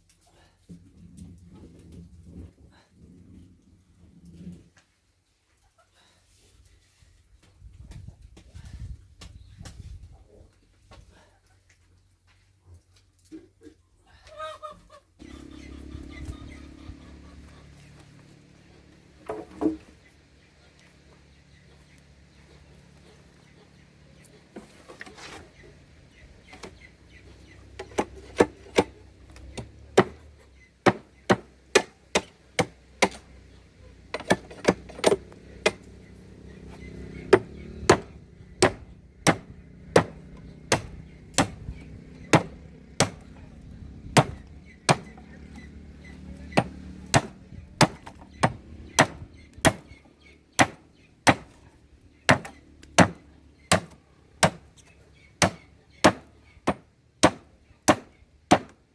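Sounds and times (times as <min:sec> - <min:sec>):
blade chopping: 0:27.8 - 0:33.3, 0:34.1 - 0:36.0, 0:36.6 - 0:43.4, 0:44.2 - 0:45.7, 0:46.5 - 0:50.0, 0:50.6 - 0:51.6, 0:52.3 - 0:54.7, 0:55.4 - 0:58.8.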